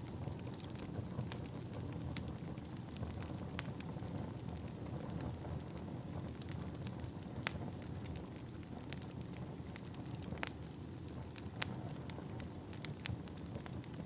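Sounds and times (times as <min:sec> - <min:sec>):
fire crackling and popping: 0:00.0 - 0:14.0
fire rumbling in fireplace: 0:00.0 - 0:14.0.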